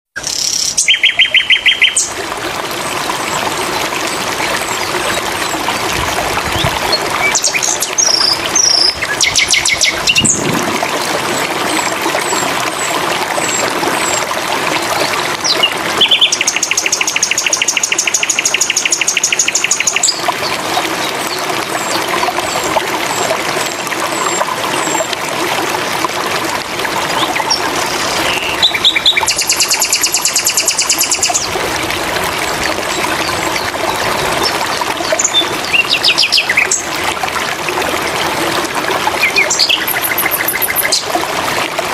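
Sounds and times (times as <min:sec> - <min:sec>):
bird whistling and trilling: 0:00.2 - 0:02.1
running water: 0:00.2 - 0:41.9.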